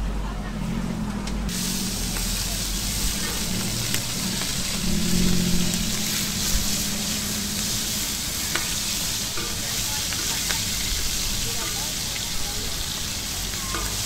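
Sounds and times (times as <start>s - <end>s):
shrimp sizzling on a hot pan: 1.5s - 14.0s
metal spatula clicking on pan: 13.7s - 14.0s.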